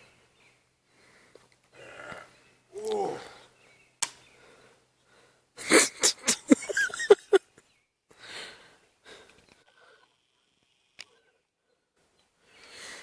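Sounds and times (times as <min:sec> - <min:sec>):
faint breath: 0:00.9 - 0:01.5, 0:03.2 - 0:05.5, 0:08.1 - 0:10.2, 0:11.1 - 0:13.0
person breathy vocal sounds: 0:01.8 - 0:03.4.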